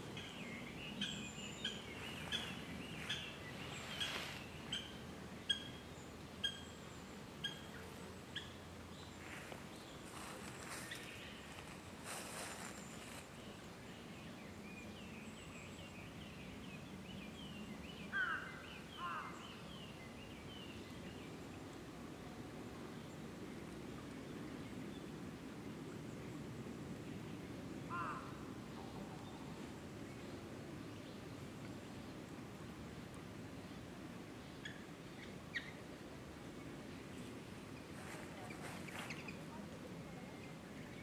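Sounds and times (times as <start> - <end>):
sweeping bird calls: 0.0 - 6.8, 34.5 - 35.8, 37.7 - 39.4
birds chirping: 0.0 - 21.2, 37.0 - 39.6.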